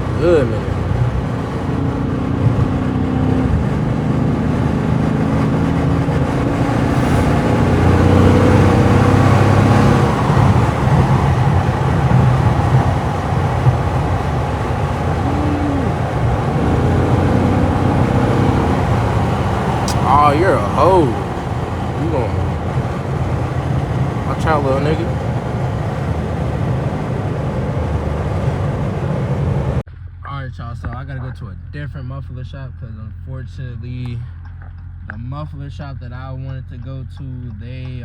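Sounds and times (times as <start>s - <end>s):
car engine droning: 0.0s - 29.8s.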